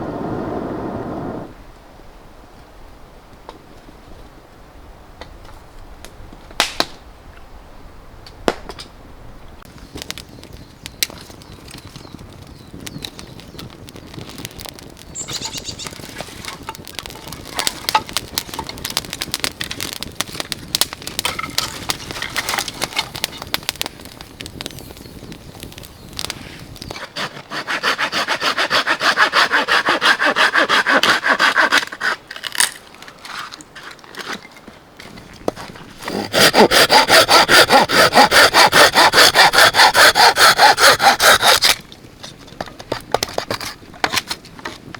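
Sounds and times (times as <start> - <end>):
hand saw cutting wood: 26.9 - 32.3, 36.0 - 41.8
scraping and rubbing on wood: 26.9 - 44.9.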